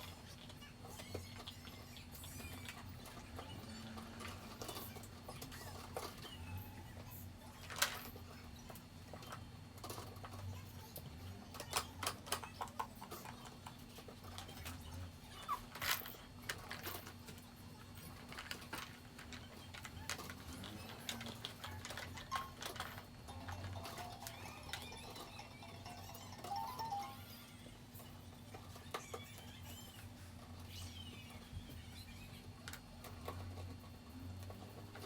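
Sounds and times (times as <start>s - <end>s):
plastic parts clicking and knocking: 7.6s - 27.0s.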